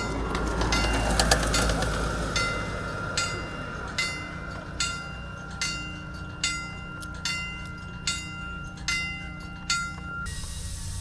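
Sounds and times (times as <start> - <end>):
locomotive bell ringing: 0.0 - 11.0.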